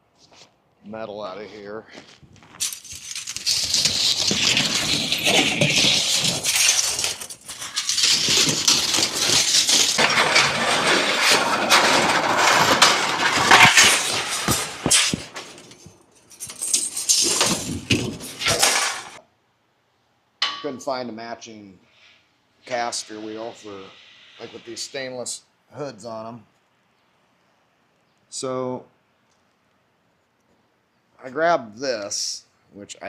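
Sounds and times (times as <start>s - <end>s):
scrap metal clattering and scraping: 2.4s - 19.2s.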